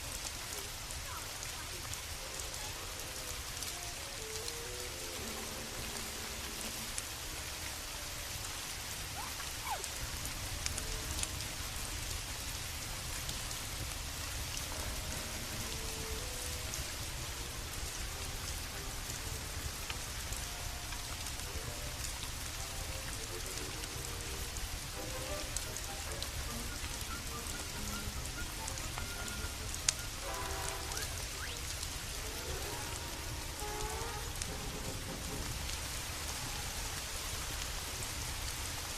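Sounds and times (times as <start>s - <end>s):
steady rain falling: 0.0s - 38.9s
soft musical tones: 1.8s - 12.1s, 14.4s - 37.2s.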